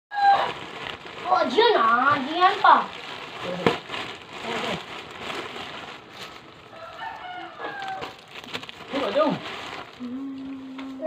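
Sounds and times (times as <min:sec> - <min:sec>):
rooster crowing: 0:06.7 - 0:08.3.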